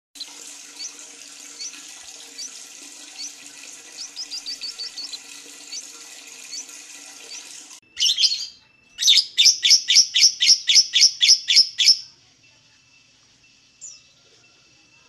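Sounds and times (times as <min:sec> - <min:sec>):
running water hiss: 0:00.2 - 0:07.8
bird chirping: 0:01.6 - 0:12.1, 0:13.8 - 0:14.6.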